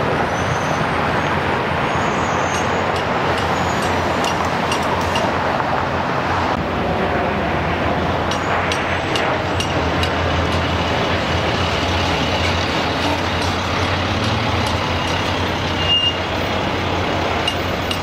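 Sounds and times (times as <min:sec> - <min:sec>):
trucks and road traffic: 0:00.0 - 0:18.0
short high squeal: 0:15.7 - 0:16.3.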